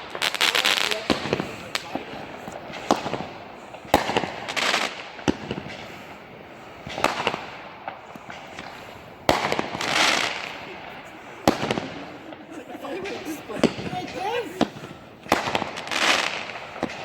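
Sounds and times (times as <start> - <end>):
fireworks bangs: 0.0 - 17.0
fireworks crackling: 0.0 - 17.0.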